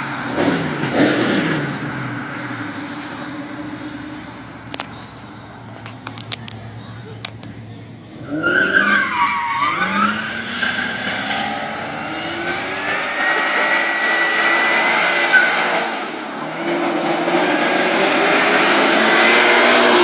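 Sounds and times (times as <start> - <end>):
car engine revving hard: 0.0 - 5.5, 8.2 - 20.0
tyres squealing: 2.4 - 13.8
sharp clicks: 5.7 - 7.6.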